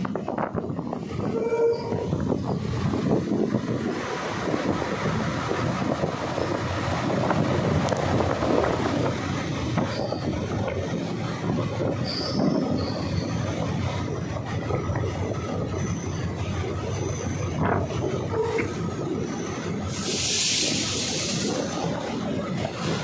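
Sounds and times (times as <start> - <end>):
train wheels rumbling: 0.0 - 23.0
faint high wheel squeals: 9.8 - 10.4, 12.0 - 13.5, 15.7 - 17.6.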